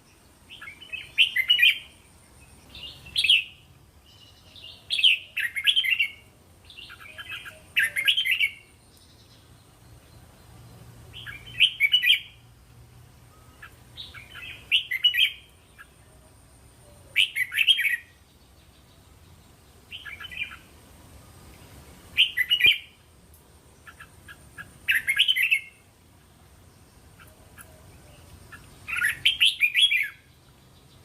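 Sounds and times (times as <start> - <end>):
bird singing warbled phrases: 0.1 - 12.5, 13.3 - 20.8, 22.1 - 23.1, 23.8 - 31.0.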